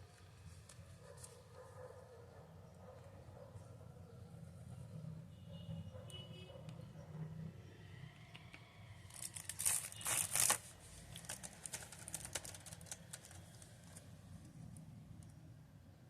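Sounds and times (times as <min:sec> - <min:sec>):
scattered crackles and clicks: 0:08.4 - 0:15.4
packaging crinkling and rustling: 0:09.1 - 0:14.1.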